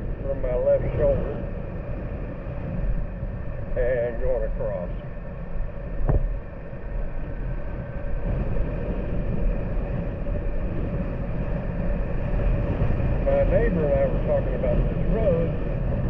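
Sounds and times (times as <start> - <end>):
road rumble: 0.0 - 16.0
wind buffeting microphone: 0.0 - 16.0
sharp knock: 6.0 - 6.3.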